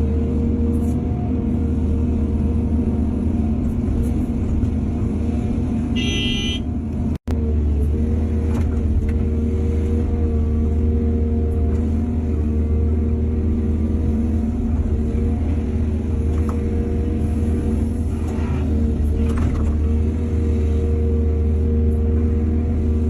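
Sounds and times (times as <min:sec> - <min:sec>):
diesel earthmoving machinery running: 0:00.0 - 0:23.0
short horn toot: 0:06.0 - 0:06.7.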